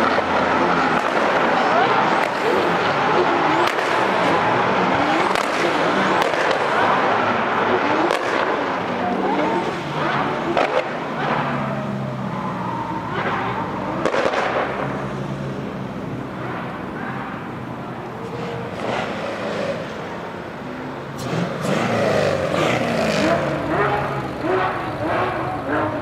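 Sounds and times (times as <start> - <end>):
car engines revving and passing: 0.0 - 26.0
exhaust cracks and pops: 7.6 - 9.0, 10.0 - 12.0, 13.1 - 15.1.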